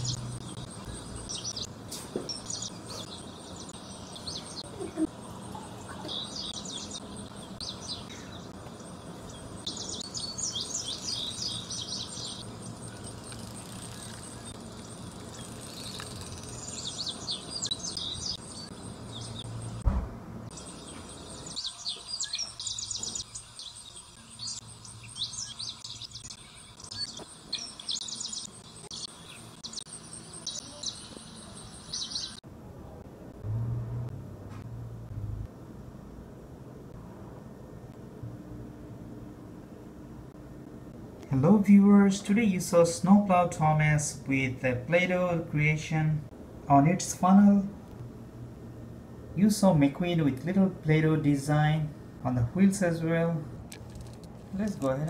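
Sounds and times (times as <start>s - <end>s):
small birds chirping: 0.0s - 19.9s, 20.5s - 32.4s
thump: 19.8s - 20.2s.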